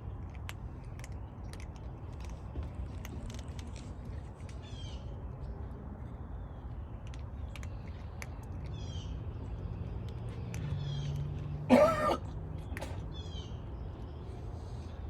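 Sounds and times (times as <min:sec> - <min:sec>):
bird chirping: 0:08.6 - 0:11.2, 0:12.7 - 0:14.4.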